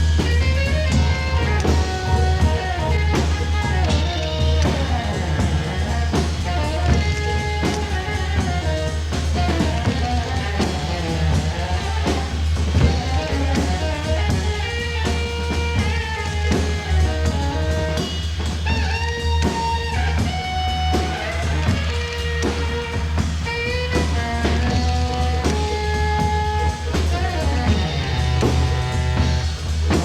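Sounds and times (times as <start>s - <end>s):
drum kit: 0.0s - 30.0s
electric guitar: 0.0s - 30.0s
low bass: 0.0s - 30.0s.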